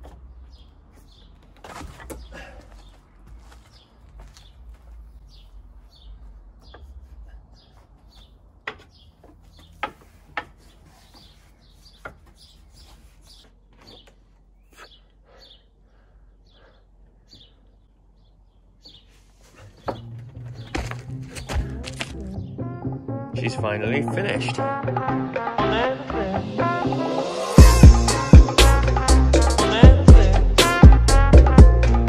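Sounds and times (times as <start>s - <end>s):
small birds chirping: 0.0s - 22.6s.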